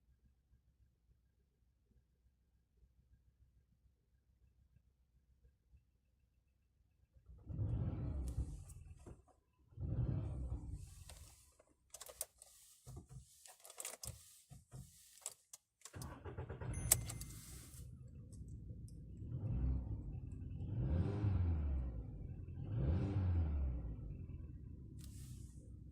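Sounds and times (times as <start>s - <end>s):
car engine starting and running: 7.2s - 25.9s
car engine revving: 7.4s - 9.0s, 9.8s - 11.5s, 15.9s - 25.6s
keys clicking and rattling: 13.5s - 14.2s, 16.7s - 17.5s.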